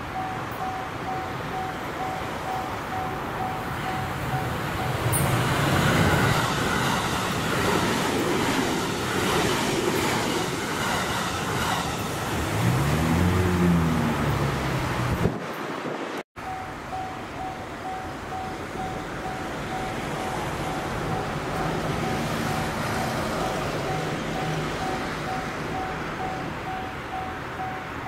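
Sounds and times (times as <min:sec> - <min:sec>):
train passing with rail clatter: 0:00.0 - 0:28.0
level-crossing alarm ringing: 0:16.4 - 0:28.0.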